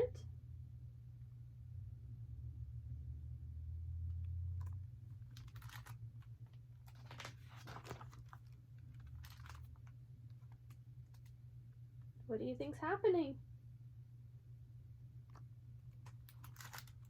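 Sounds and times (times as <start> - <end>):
steady low hum: 0.0 - 17.0
handling clicks and rustles: 15.3 - 17.0.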